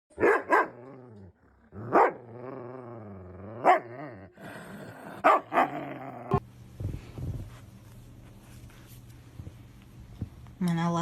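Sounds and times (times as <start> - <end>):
animal low wavering growl: 0.8 - 6.4.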